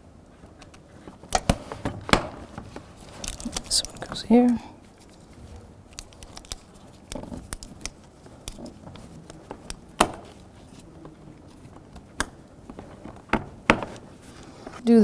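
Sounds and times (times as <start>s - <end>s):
plastic connectors clicking: 3.1s - 5.2s, 5.9s - 14.1s.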